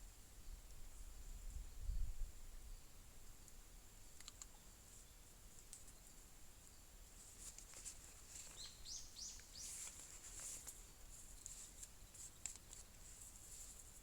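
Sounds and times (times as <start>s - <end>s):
light scattered clicks: 3.4s - 4.6s, 11.4s - 12.9s
high bird chirps: 8.6s - 9.8s.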